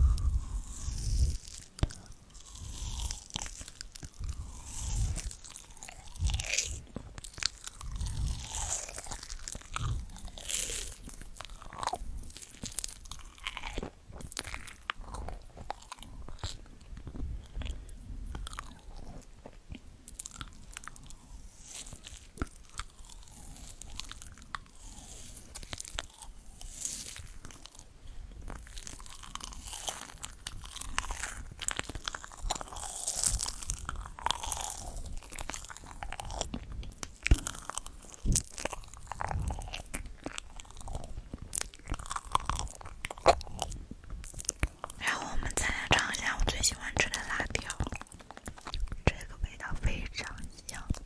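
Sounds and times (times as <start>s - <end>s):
crunchy eating and chewing: 0.0s - 51.0s.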